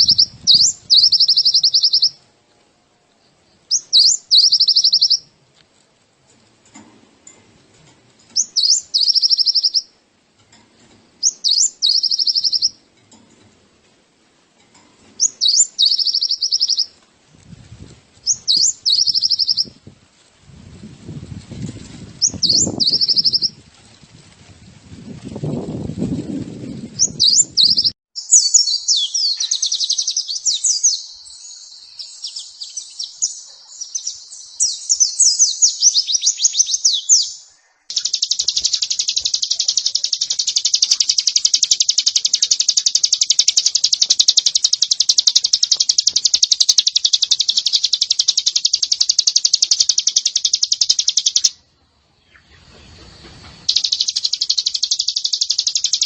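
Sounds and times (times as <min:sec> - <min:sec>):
bird song sweeping high notes: 0:00.0 - 0:02.2, 0:03.7 - 0:05.3, 0:08.4 - 0:10.0, 0:11.2 - 0:12.8, 0:15.2 - 0:17.0, 0:18.3 - 0:19.8, 0:22.2 - 0:23.6, 0:27.0 - 0:52.8, 0:53.6 - 0:56.0
rapid high bird trill: 0:00.0 - 0:02.2, 0:03.7 - 0:05.3, 0:08.3 - 0:10.0, 0:11.2 - 0:12.9, 0:15.2 - 0:17.0, 0:18.2 - 0:19.8, 0:22.2 - 0:23.6, 0:27.0 - 0:51.7, 0:53.6 - 0:56.0.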